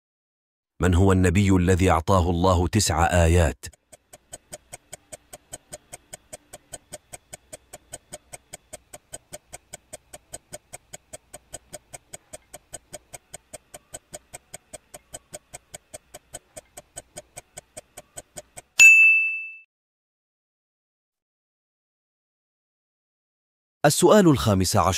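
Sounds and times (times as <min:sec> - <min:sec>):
clock-like ticking: 0:02.9 - 0:18.8
bell ding: 0:18.8 - 0:19.7.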